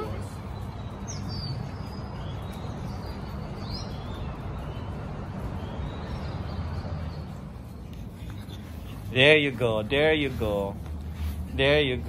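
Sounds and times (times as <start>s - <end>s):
high bird chirps: 0.0s - 7.8s
steady low street rumble: 0.0s - 12.0s.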